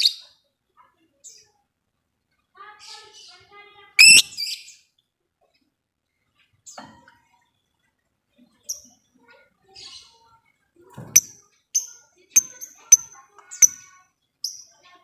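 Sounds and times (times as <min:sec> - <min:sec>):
lovebird chirping: 0:04.0 - 0:04.8, 0:11.2 - 0:14.7.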